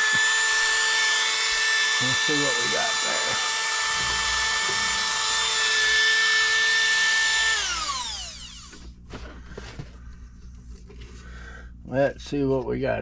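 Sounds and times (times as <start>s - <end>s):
power tool grinding plastic: 0.0s - 8.9s.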